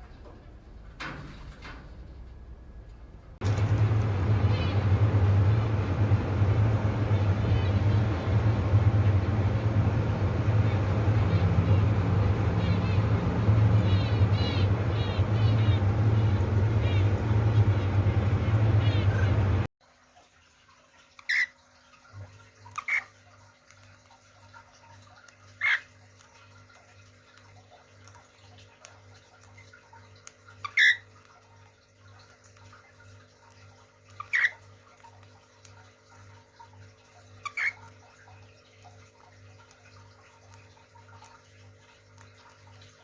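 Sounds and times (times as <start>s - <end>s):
bird calls: 3.4s - 19.7s
steady low hum: 3.4s - 19.7s.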